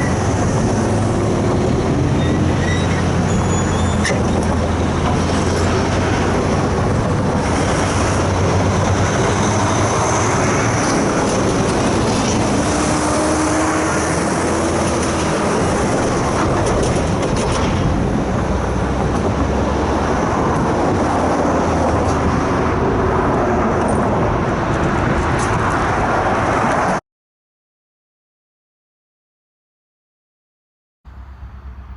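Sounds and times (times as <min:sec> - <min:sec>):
rail clicks: 0:00.0 - 0:13.1, 0:13.9 - 0:19.4
train wheels rumbling on rails: 0:00.0 - 0:27.0.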